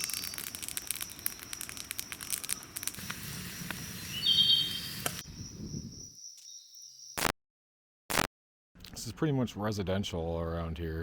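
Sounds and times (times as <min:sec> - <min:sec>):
short bird chirp: 0:04.1 - 0:05.0.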